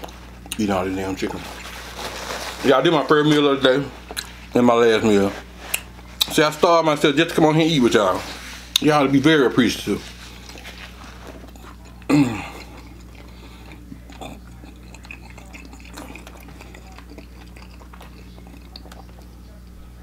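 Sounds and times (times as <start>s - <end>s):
man chewing food: 0.0s - 6.4s, 7.3s - 20.0s.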